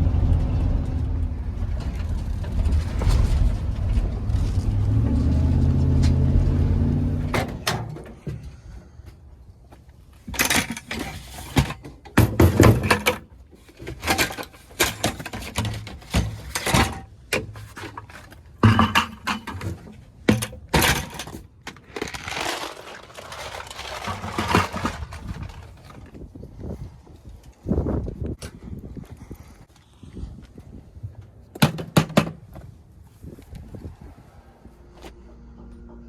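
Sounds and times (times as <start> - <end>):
hard objects clattering and rattling: 10.2 - 26.4.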